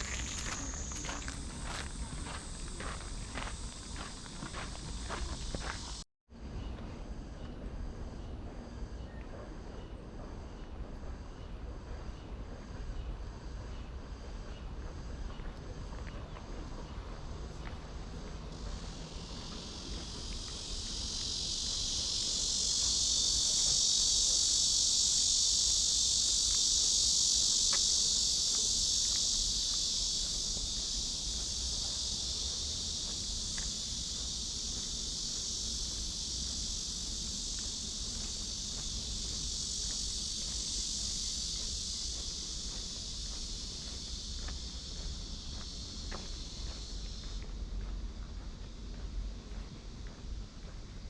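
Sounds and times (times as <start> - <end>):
cicadas buzzing: 0.0 - 6.0, 6.6 - 51.0.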